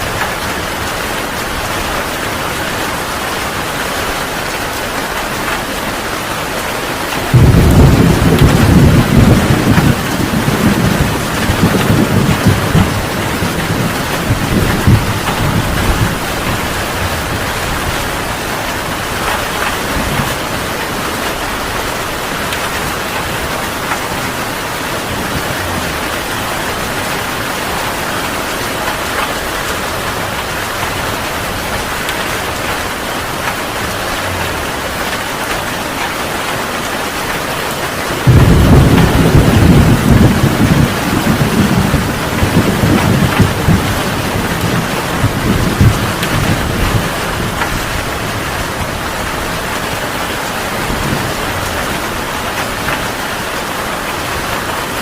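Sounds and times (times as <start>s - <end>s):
heavy rain falling: 0.0s - 55.0s
thunder rumble: 6.5s - 36.9s, 38.1s - 53.7s
loud peal of thunder: 7.3s - 18.0s, 38.2s - 48.1s.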